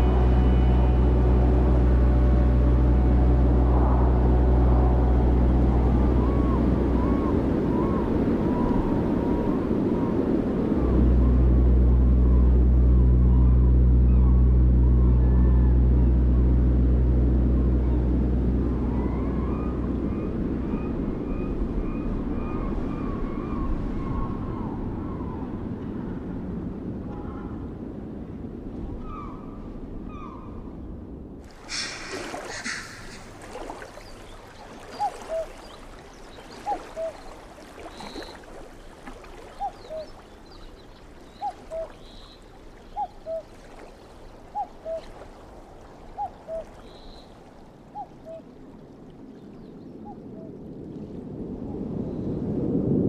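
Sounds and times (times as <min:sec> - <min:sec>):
flowing river water: 0:00.0 - 0:15.0, 0:31.4 - 0:51.9.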